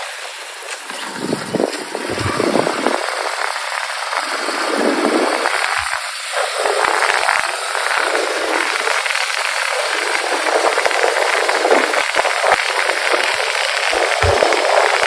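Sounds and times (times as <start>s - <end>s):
crackle and rattle: 0.1s - 15.0s
wind and road noise: 0.8s - 6.0s.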